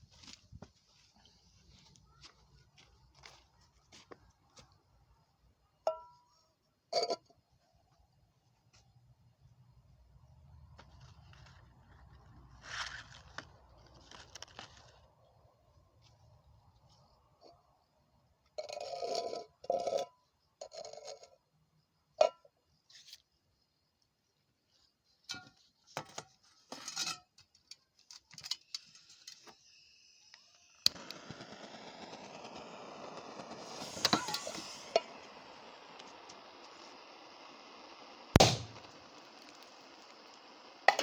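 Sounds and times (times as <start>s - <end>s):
steady hiss: 28.7s - 41.0s.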